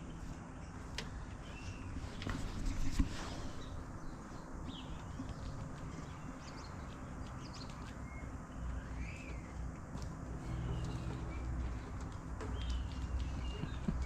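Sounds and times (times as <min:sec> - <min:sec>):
steady low hum: 0:00.0 - 0:14.0
bird chirps: 0:03.6 - 0:09.6.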